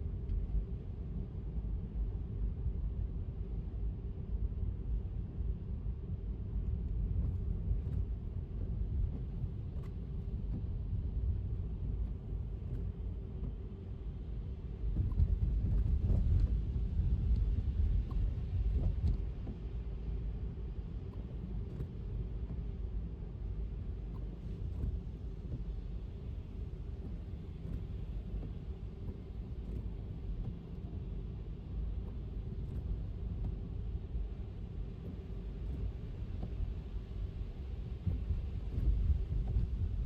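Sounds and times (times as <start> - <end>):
faint constant hum: 0.0 - 40.0
light ticks: 17.3 - 19.7, 26.9 - 33.8, 34.9 - 37.3.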